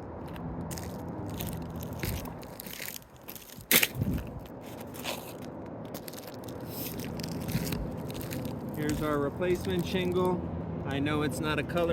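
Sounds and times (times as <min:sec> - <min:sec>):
roof shingles scraping and crackling: 0:00.7 - 0:10.4.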